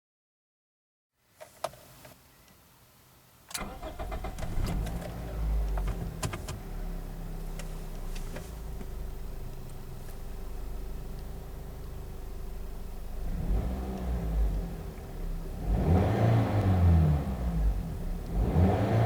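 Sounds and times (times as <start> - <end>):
steady whine: 2.3 - 15.6
car engine starting and idling: 3.5 - 19.0.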